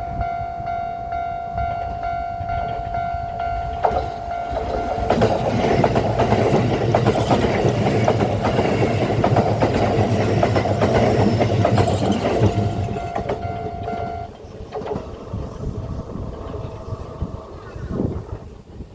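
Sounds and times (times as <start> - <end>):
steady high tone: 0.0 - 6.6, 12.3 - 14.4
train wheels clattering over rail joints: 2.6 - 17.6.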